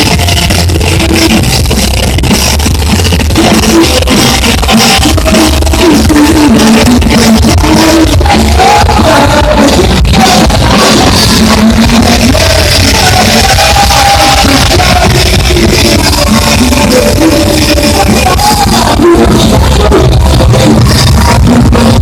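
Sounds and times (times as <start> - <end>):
live band playing: 0.0 - 22.0
person singing long notes: 3.1 - 22.0.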